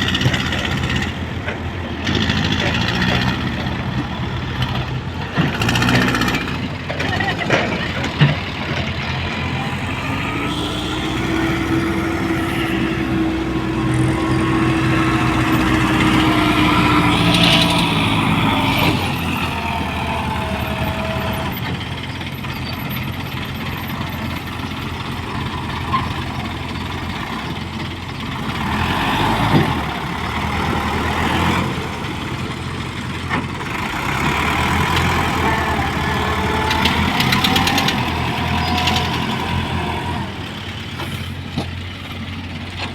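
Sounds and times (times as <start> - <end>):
diesel engines running: 0.0 - 42.9
pitched tone: 9.5 - 19.5.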